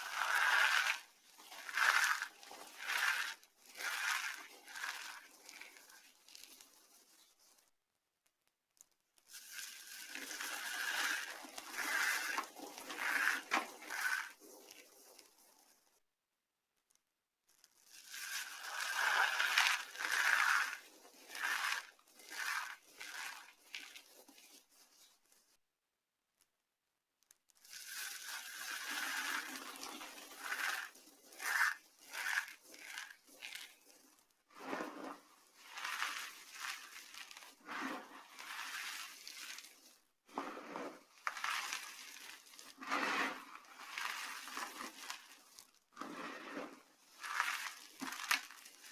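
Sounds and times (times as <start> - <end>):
dry soap crunching: 0.0 - 6.6, 17.8 - 24.0, 27.6 - 39.8, 40.4 - 48.9.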